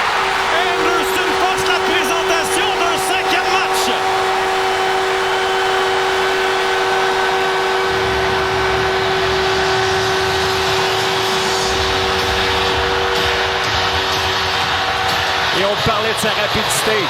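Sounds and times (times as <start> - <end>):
multi-tone goal horn: 0.0 - 15.8
arena crowd cheering: 0.0 - 17.0
deep rumble: 4.0 - 15.6.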